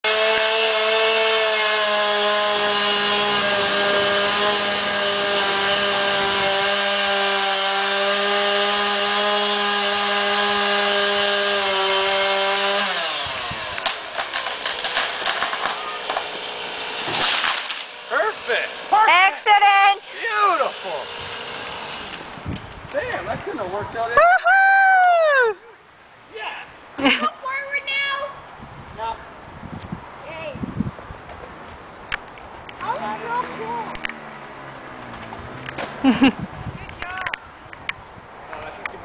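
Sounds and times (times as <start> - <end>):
chainsaw cutting: 0.0 - 22.6, 32.8 - 36.3
tree crashing down: 0.1 - 18.9
wood cracking and snapping: 13.1 - 18.0.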